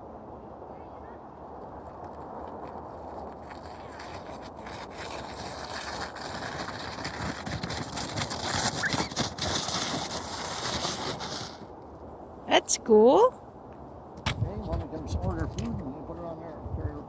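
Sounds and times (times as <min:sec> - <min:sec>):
rough noise: 0:01.8 - 0:11.7
snow crunching: 0:01.9 - 0:11.7.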